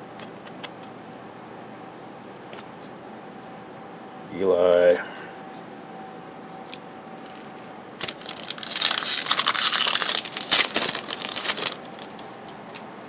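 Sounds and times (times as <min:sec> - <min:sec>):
foil wrapper crinkling: 0:07.2 - 0:12.8.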